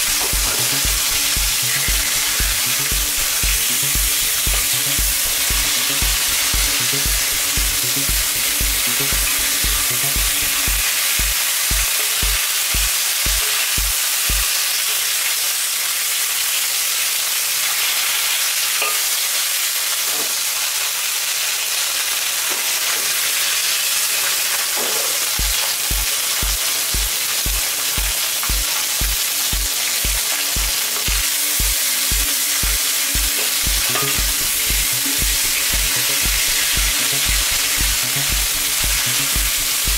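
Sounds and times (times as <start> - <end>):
background music bass beat: 0.0 - 14.5, 25.4 - 39.9
meat sizzling in hot oil: 0.0 - 39.9.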